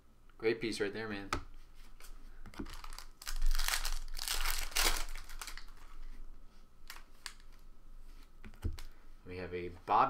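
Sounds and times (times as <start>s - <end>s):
plastic wrapper crinkling: 2.5s - 6.0s, 6.8s - 7.6s.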